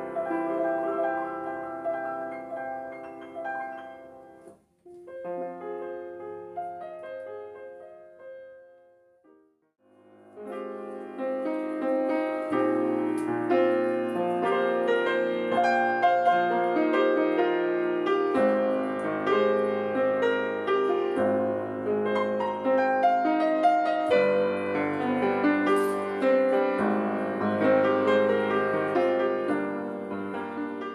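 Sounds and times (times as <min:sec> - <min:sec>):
grand piano chords: 0:00.0 - 0:30.9.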